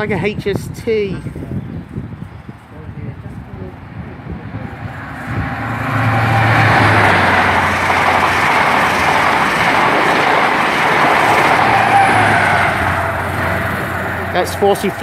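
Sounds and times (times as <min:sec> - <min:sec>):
diesel engine hum: 0:03.7 - 0:15.0
train rushing past: 0:03.8 - 0:15.0.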